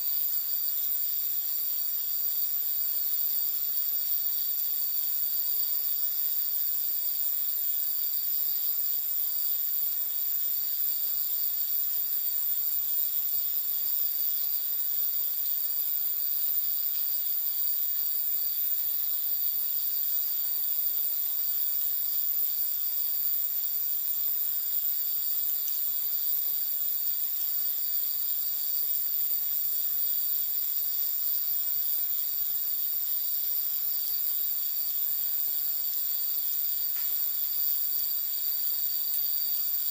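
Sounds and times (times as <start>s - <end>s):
night insects trilling: 0.0s - 39.9s
faint hiss: 31.1s - 39.9s.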